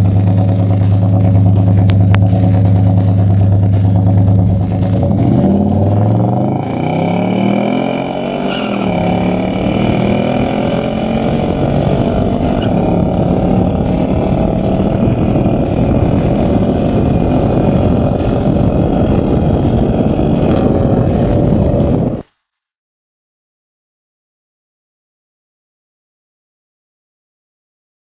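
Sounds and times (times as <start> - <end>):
car engine at full throttle: 0.0 - 22.3
tyre and wind noise: 8.2 - 22.3.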